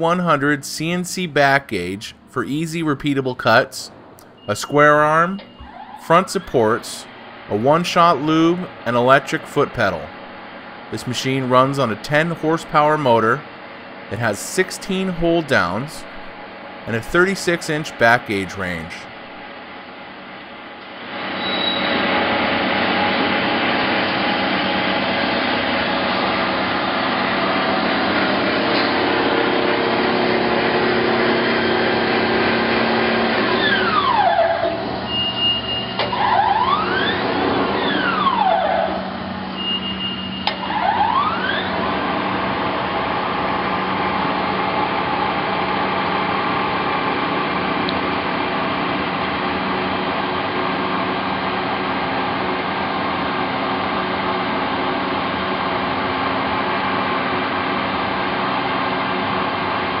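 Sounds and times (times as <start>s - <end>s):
siren wailing: 4.5s - 7.0s, 33.5s - 42.0s.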